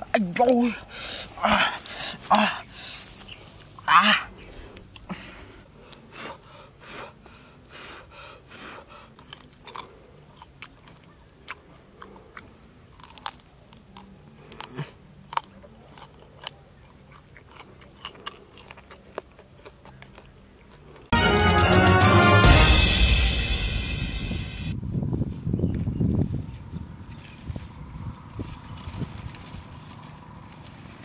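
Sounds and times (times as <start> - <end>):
crunchy chewing: 3.0 - 21.1.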